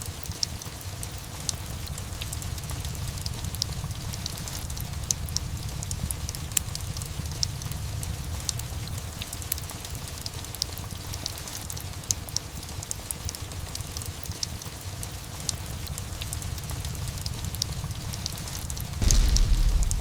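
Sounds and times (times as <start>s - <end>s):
steady rain: 0.0s - 20.0s
low constant rumble: 16.3s - 20.0s
fireplace crackling: 19.0s - 20.0s.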